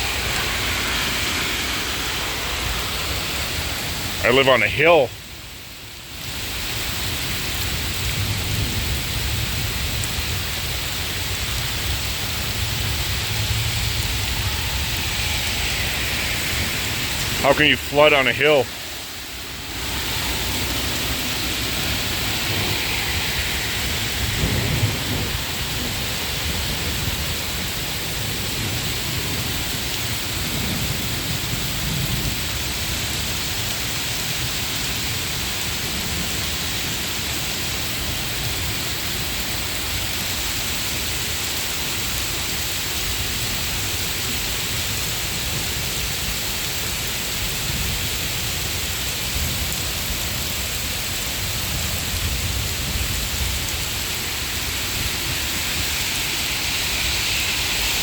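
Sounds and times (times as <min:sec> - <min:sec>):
thunder rolling: 0:00.0 - 0:05.4, 0:06.7 - 0:33.7, 0:51.7 - 0:58.0
heavy rain pouring: 0:00.0 - 0:58.0.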